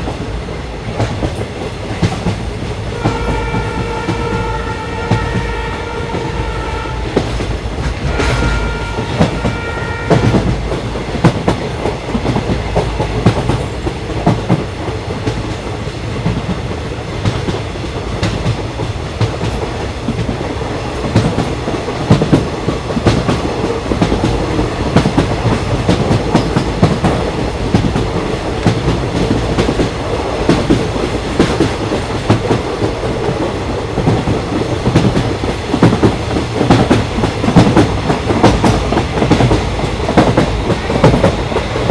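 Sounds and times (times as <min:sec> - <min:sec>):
train rumbling on rails: 0:00.0 - 0:41.9
train horn: 0:02.9 - 0:07.4, 0:08.0 - 0:10.6
wheels clacking over rail joints: 0:16.2 - 0:41.9.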